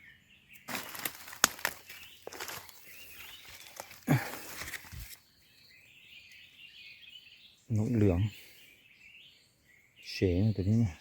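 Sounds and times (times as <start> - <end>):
rustling handling noise: 0.7 - 5.2.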